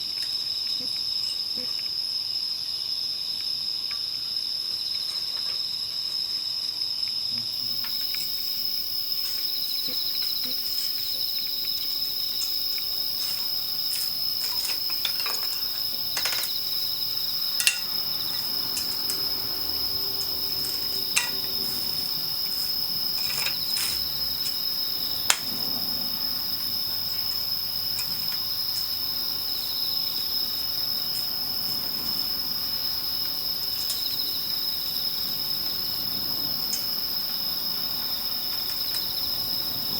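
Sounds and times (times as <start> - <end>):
insects chirring: 0.0 - 39.9
campfire crackling and popping: 7.6 - 29.0.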